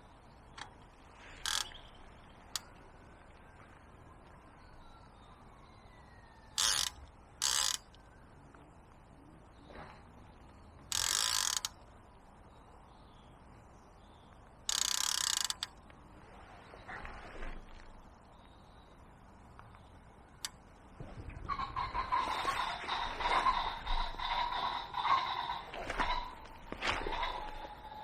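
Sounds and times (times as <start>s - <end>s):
fishing reel ratchet clicking: 1.4s - 1.8s, 6.6s - 8.0s, 10.9s - 11.8s, 14.7s - 15.8s.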